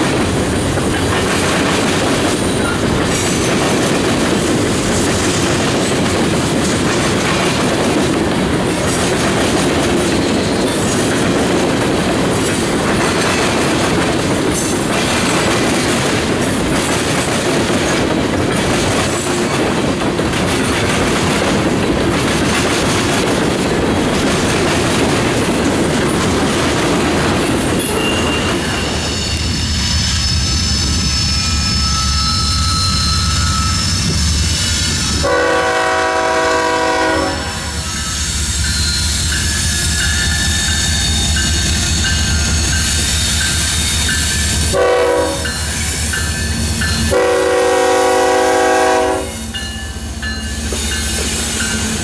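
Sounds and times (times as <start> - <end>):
wheels clattering on rails: 0.0 - 29.6, 49.5 - 52.0
train cars rumbling past: 0.0 - 52.0
high wheel squeal: 27.7 - 35.3, 37.7 - 44.7.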